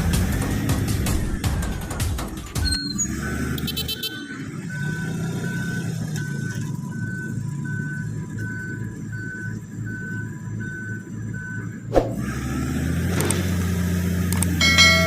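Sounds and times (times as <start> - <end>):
bulldozer diesel engine running: 0.0 - 15.0
reversing alarm beeping: 2.6 - 11.9, 14.6 - 15.0.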